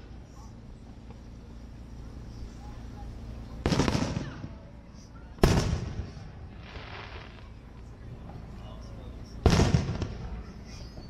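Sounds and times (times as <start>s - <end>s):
firework booms with echo: 3.6s - 4.6s, 5.4s - 7.5s, 9.4s - 10.5s.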